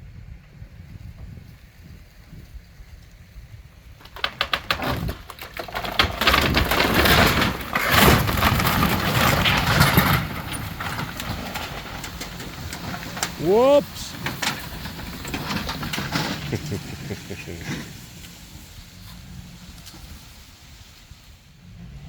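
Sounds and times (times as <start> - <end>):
wood cracking and crashing: 4.0 - 18.1.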